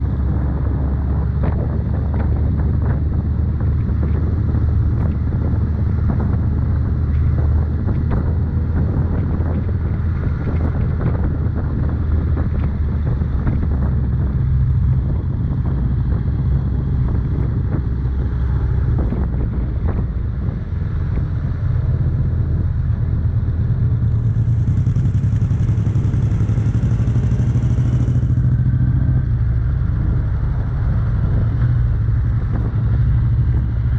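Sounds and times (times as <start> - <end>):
motorcycle engine running: 0.0 - 33.9
wind and road noise: 0.0 - 33.9.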